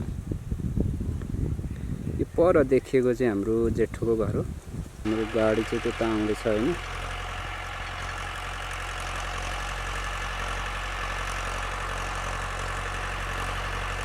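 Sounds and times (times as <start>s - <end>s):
vehicle engine running: 5.0s - 14.0s.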